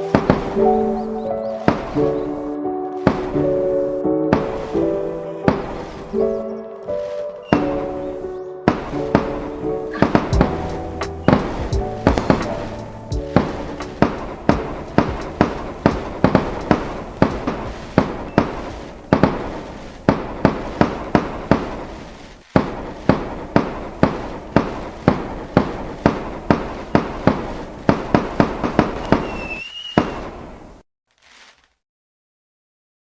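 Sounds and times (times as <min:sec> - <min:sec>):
fireworks bangs: 0:00.0 - 0:31.8
high firework whistle: 0:04.3 - 0:14.3, 0:28.8 - 0:30.4.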